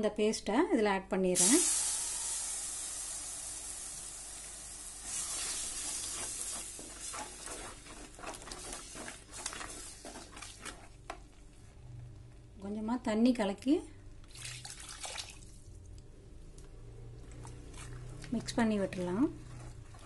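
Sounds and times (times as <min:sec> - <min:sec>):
paste sizzling in hot oil: 0:01.4 - 0:11.0
wooden spatula scraping pan: 0:05.5 - 0:11.0, 0:18.3 - 0:20.0.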